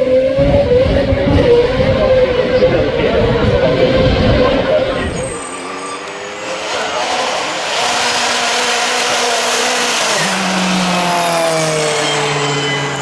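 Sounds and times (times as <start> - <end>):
racing car engine passing by: 0.0 - 13.0.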